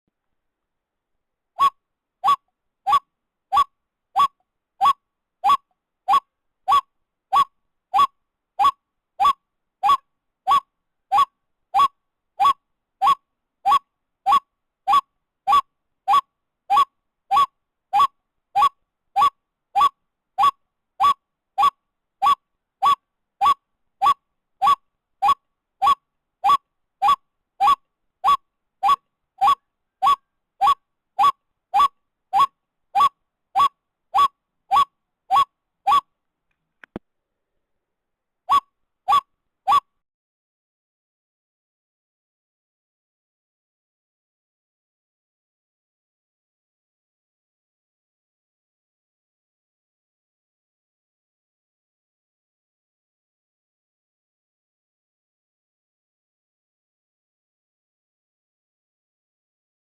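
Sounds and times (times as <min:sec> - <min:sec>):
waterhen call: 0:01.6 - 0:36.0, 0:38.5 - 0:39.8.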